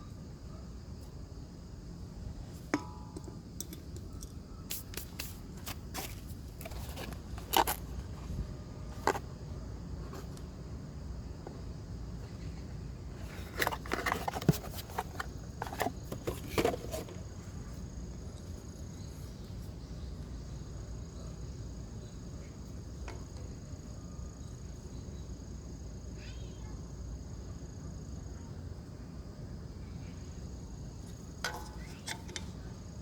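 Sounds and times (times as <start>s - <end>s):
tools and parts clicking and scraping: 6.0s - 8.3s, 9.0s - 9.2s, 13.2s - 17.2s, 31.1s - 32.6s.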